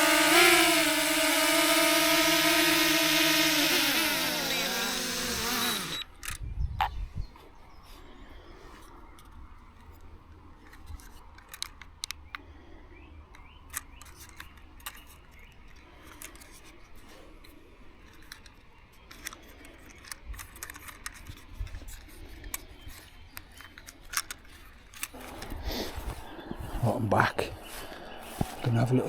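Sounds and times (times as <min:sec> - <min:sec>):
sharp clicks: 0:00.0 - 0:06.9, 0:13.3 - 0:26.4.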